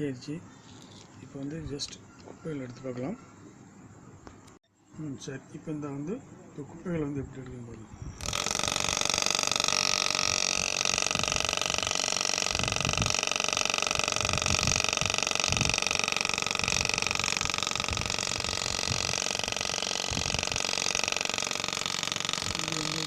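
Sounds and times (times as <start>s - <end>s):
small electric motor whining: 8.2s - 23.0s.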